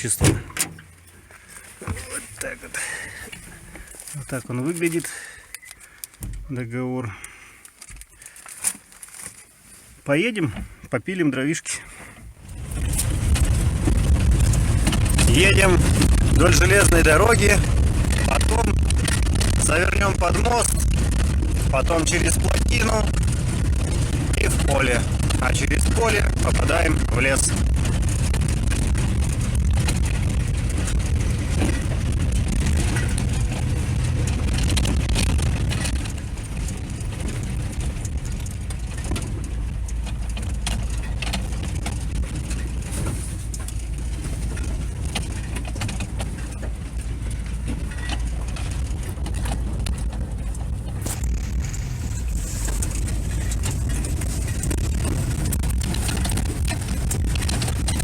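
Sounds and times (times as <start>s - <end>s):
vehicle engine and road rumble: 0.0s - 58.0s
knocks and rattles: 12.4s - 58.0s.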